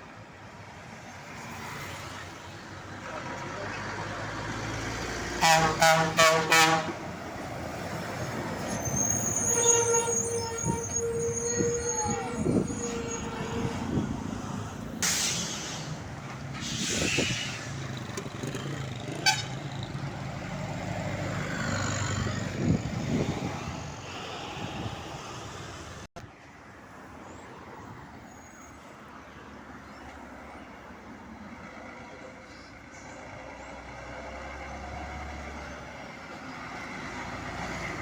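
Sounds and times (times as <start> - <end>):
traffic passing: 0.0 - 38.0
horn toots: 5.4 - 7.0, 8.8 - 14.0, 19.1 - 19.7
air hiss: 16.6 - 17.7.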